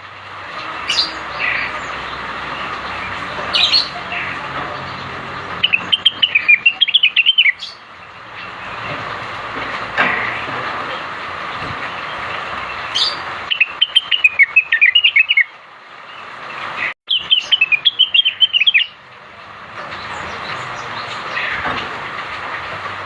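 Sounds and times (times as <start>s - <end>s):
bird chirping rapidly: 0.6s - 8.9s, 12.7s - 15.5s, 16.1s - 19.0s.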